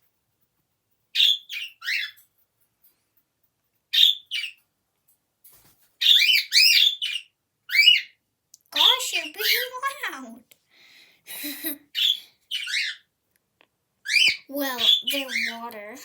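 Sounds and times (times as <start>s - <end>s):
pet bird chirping: 1.1s - 2.2s, 3.9s - 4.6s, 6.0s - 8.2s, 8.8s - 10.2s, 11.4s - 13.1s, 14.0s - 16.0s.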